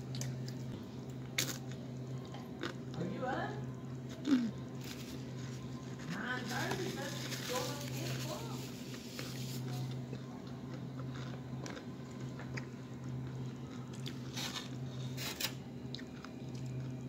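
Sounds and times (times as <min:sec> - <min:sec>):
steady low hum: 0:00.0 - 0:17.0
person crunching tortilla chips: 0:01.4 - 0:01.8, 0:10.9 - 0:11.8.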